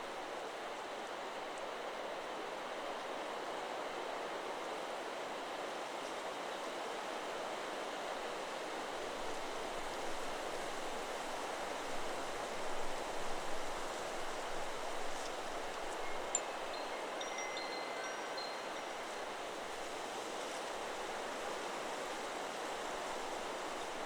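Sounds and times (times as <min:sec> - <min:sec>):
wind rustling tree leaves: 0:00.0 - 0:24.0.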